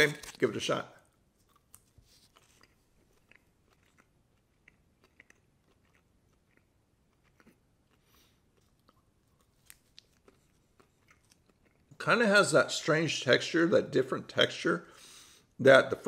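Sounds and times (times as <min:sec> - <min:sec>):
faint chewing: 0:00.1 - 0:12.0.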